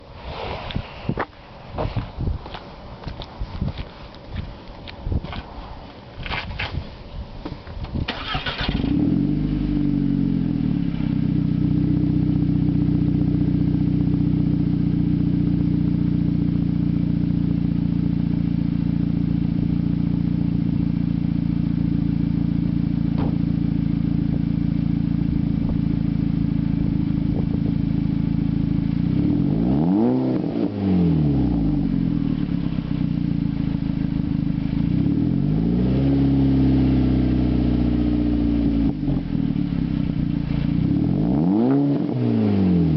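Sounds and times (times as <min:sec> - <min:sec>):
car engine idling: 0:08.1 - 0:29.6, 0:31.1 - 0:35.5, 0:36.4 - 0:41.6.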